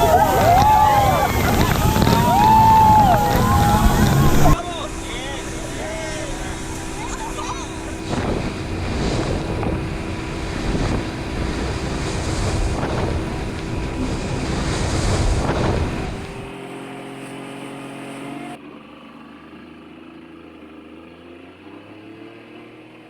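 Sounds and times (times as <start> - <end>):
wind buffeting microphone: 0.0 - 16.6
steady hum: 0.0 - 17.4
water rushing: 0.0 - 18.6
speedboat running fast: 0.0 - 23.0.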